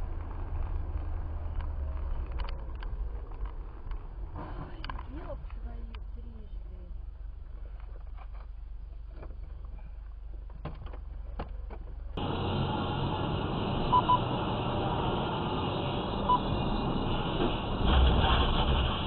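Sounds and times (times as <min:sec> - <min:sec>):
road and engine noise: 0:00.0 - 0:19.0
vehicle rumble: 0:00.0 - 0:19.0
short high electronic beeps: 0:13.9 - 0:14.3.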